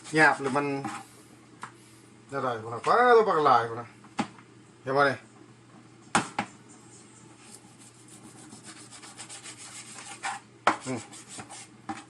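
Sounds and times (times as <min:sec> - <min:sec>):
knife sawing through raw meat: 0:07.8 - 0:11.7.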